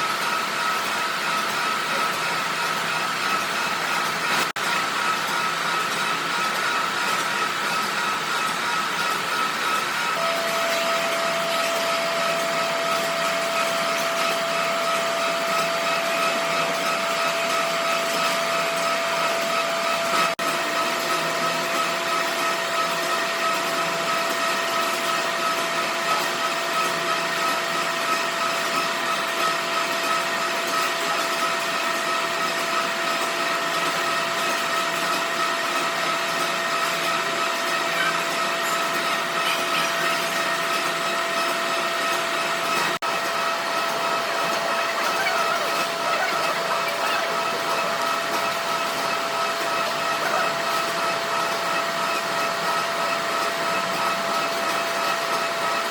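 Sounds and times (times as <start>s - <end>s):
steady machine whine: 0.0s - 55.9s
workshop machinery running: 0.0s - 55.9s.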